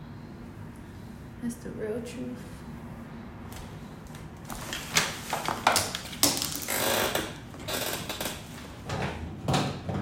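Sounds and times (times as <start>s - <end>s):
hard objects tapping and clicking: 5.4s - 7.3s.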